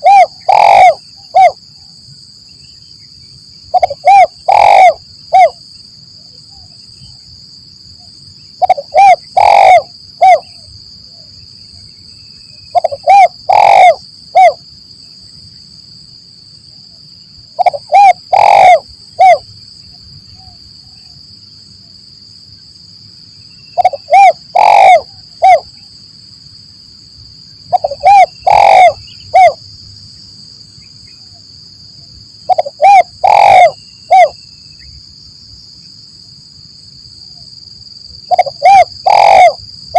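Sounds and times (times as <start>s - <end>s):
dove cooing: 0.0s - 1.6s, 3.7s - 5.6s, 8.6s - 10.6s, 12.7s - 14.6s, 17.6s - 19.4s, 23.8s - 25.8s, 27.7s - 29.6s, 32.5s - 34.4s, 38.3s - 39.6s.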